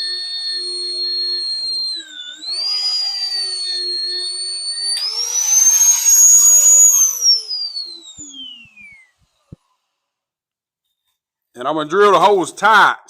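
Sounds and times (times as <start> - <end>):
electric drill boring through steel: 0.0 - 10.1.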